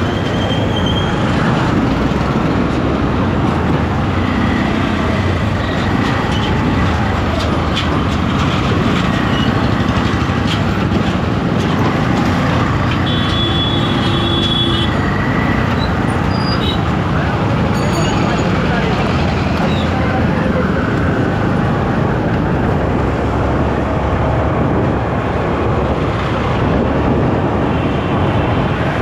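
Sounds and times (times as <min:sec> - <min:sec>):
wind noise: 0:18.4 - 0:29.0.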